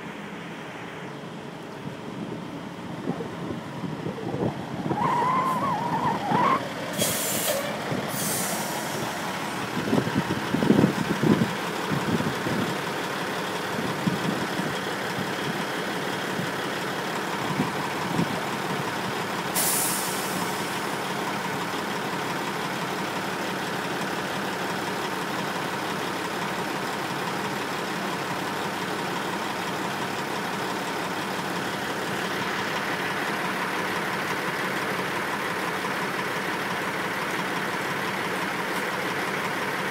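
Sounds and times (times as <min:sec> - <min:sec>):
heavy truck engine running: 0:00.0 - 0:39.9
air brake hisses: 0:07.0 - 0:09.1, 0:19.6 - 0:20.6.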